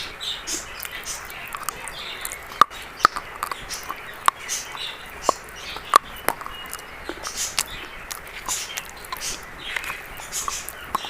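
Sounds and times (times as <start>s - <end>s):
dry chalk crunching: 0.4s - 11.0s.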